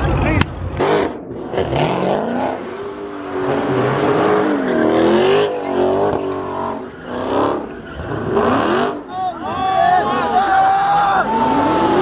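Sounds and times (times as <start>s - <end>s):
car engine revving hard: 0.7s - 9.1s.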